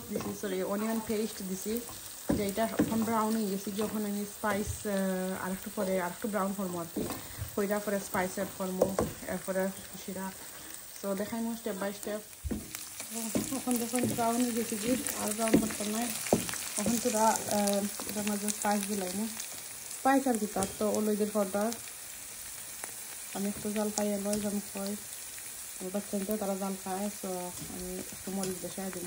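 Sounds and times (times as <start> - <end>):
onion paste sizzling in oil: 0.0 - 29.0
wooden spatula knocking pan: 2.2 - 4.8, 8.7 - 9.2, 12.4 - 17.3
person speaking: 13.1 - 16.2.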